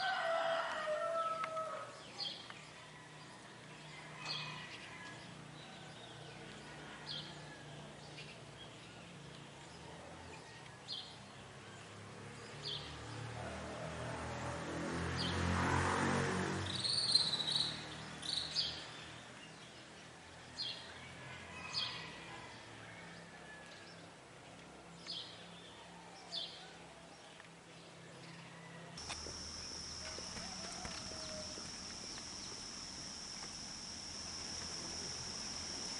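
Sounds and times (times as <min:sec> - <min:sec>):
birds chirping: 0:29.0 - 0:35.9
broad rushing noise: 0:29.0 - 0:35.9
steady high buzz: 0:29.0 - 0:35.9.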